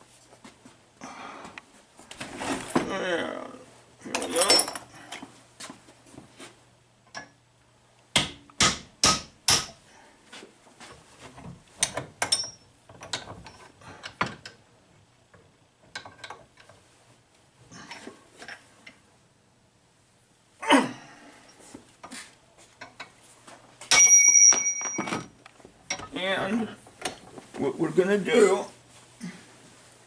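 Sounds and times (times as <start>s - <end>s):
metal tools knocking and clicking: 11.8s - 14.6s, 15.8s - 16.8s, 23.9s - 25.3s, 25.9s - 26.2s.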